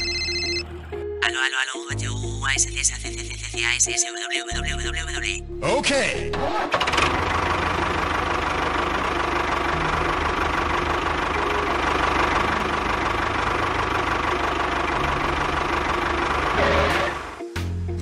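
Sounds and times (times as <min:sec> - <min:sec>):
tractor engine chugging: 0:06.7 - 0:17.4.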